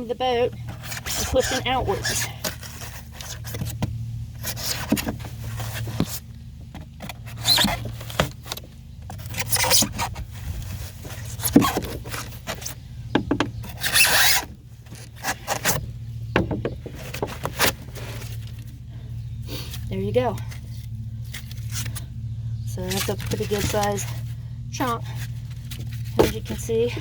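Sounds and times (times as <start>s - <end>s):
foam squeaking against boat hull: 0.5s - 6.3s, 7.0s - 8.5s, 9.1s - 18.5s.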